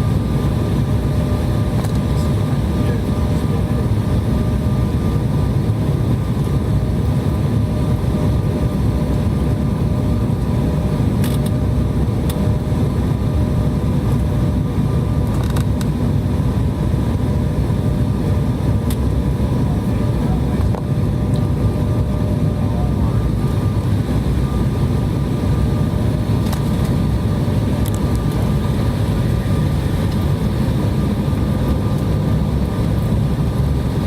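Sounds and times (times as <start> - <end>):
jet cabin engine rumble: 0.0 - 34.0.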